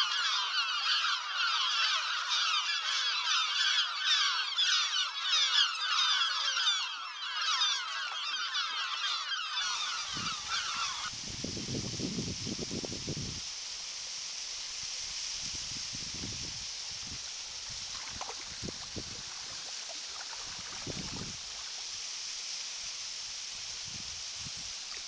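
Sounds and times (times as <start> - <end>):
flock of birds calling: 0.0 - 11.1, 18.0 - 21.8
wind rumbling on microphone: 10.0 - 13.6, 14.8 - 22.0, 23.4 - 25.0.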